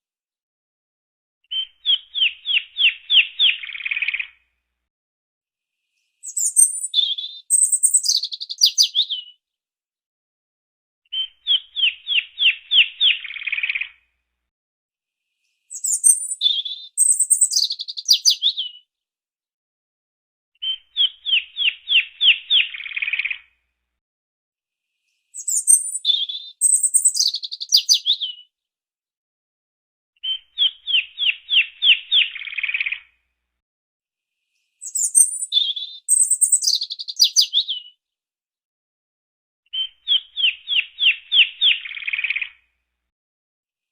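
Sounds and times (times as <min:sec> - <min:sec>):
small bird singing: 0:01.4 - 0:04.4, 0:06.0 - 0:09.4, 0:11.1 - 0:14.0, 0:15.4 - 0:18.9, 0:20.6 - 0:23.5, 0:25.0 - 0:28.5, 0:30.2 - 0:33.1, 0:34.6 - 0:38.0, 0:39.7 - 0:42.7.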